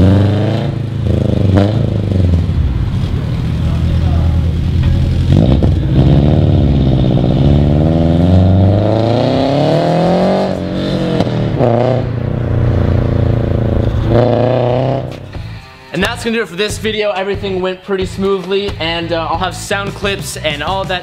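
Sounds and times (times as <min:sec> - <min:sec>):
car engine revving: 0:00.0 - 0:15.8.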